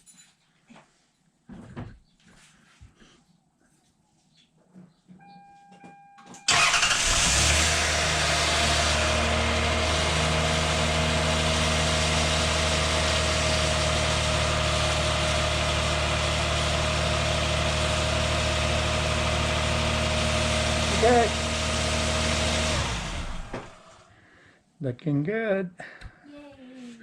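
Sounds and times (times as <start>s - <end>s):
car engine starting and idling: 6.4s - 24.1s.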